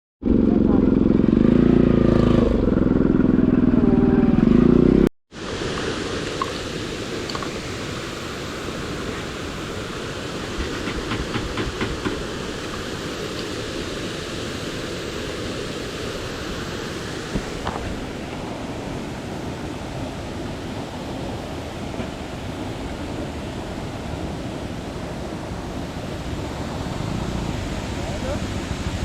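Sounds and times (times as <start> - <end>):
motorcycle engine running: 0.2 - 5.1
steady rushing noise: 0.5 - 29.0.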